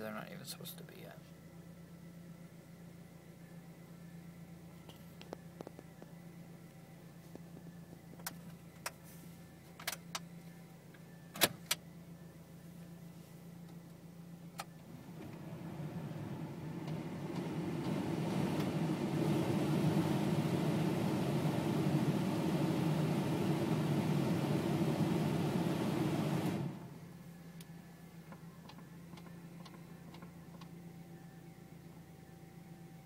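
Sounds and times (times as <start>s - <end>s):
car engine idling: 14.0s - 27.2s
blower fan rushing air: 14.8s - 27.0s.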